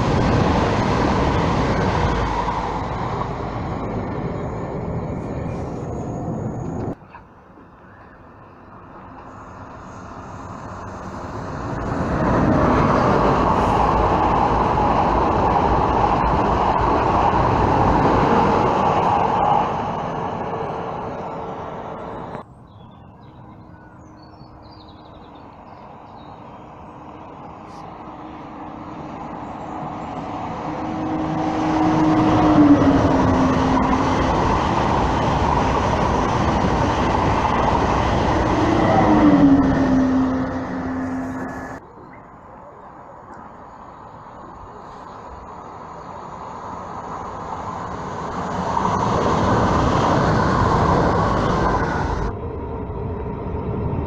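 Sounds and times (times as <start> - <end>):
high-speed train rushing past: 0.0 - 54.0.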